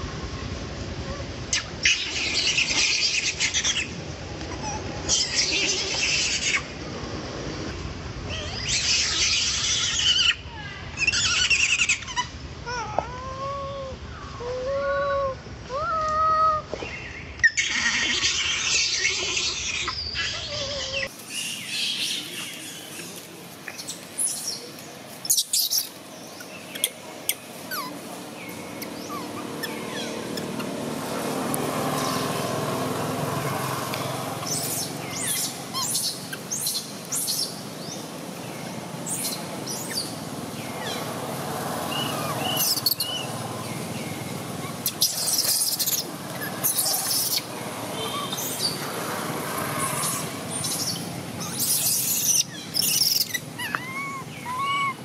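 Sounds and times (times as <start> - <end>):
outdoor background noise: 0.0 - 55.0
birds chirping: 16.7 - 55.0.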